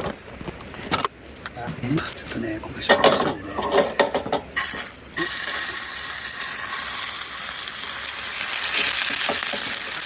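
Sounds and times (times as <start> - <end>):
steak sizzling in a pan: 4.6 - 10.0.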